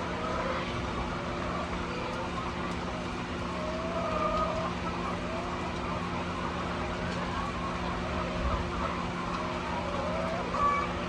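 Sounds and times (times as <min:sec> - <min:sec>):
hens calling: 0:00.0 - 0:11.0.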